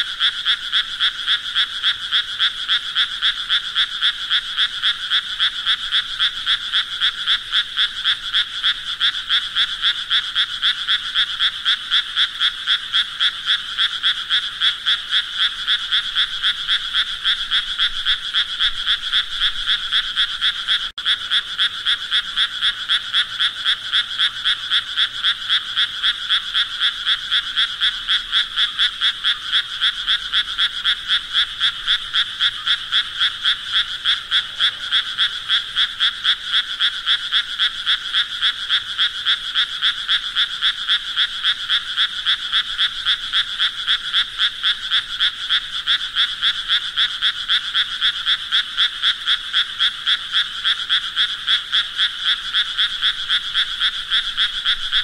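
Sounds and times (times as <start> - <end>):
frogs croaking: 0.0 - 55.0.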